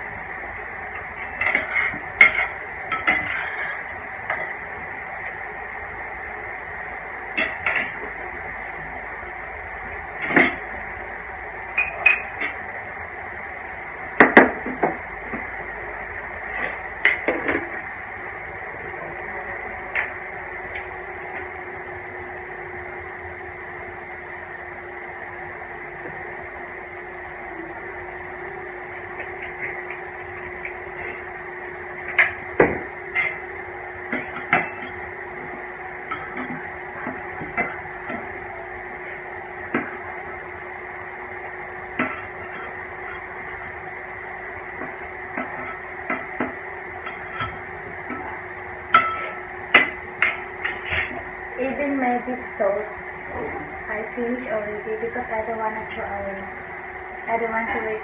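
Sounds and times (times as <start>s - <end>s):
steady hum: 0.0s - 58.0s
utensils clinking on plate: 1.4s - 4.6s, 44.8s - 48.3s, 49.0s - 51.2s.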